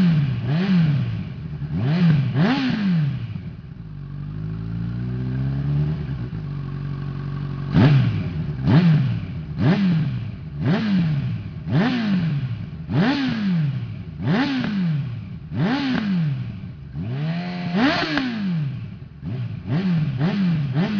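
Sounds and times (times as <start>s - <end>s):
motorcycle engine revving: 0.0s - 20.9s.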